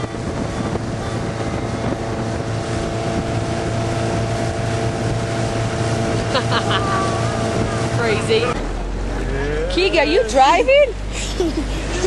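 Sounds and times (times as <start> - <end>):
wind on microphone: 0.0 - 10.1
motorboat engine running: 0.0 - 12.0.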